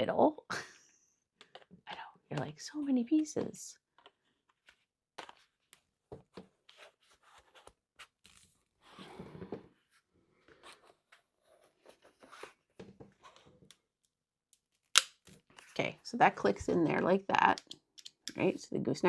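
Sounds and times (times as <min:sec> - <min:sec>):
plastic pieces clicking and tapping: 0:17.5 - 0:18.4.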